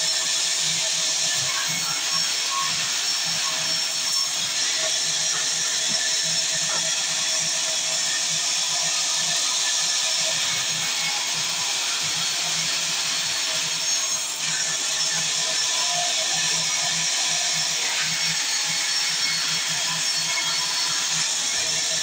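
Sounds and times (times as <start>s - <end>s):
sawmill saw whining: 0.0s - 22.0s.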